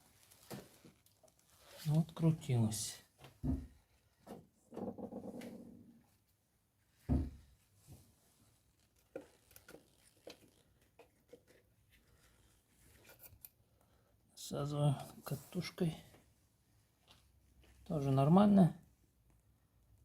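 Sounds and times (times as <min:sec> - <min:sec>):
thud: 0:07.1 - 0:07.4.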